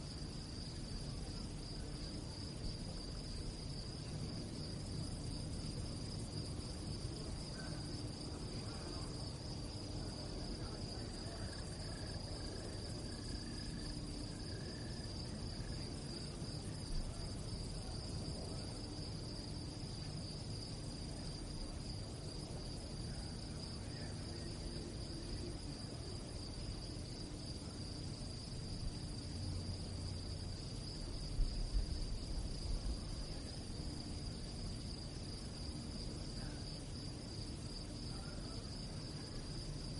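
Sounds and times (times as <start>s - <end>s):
crickets chirping: 0.0s - 39.9s
low background rumble: 0.0s - 39.9s.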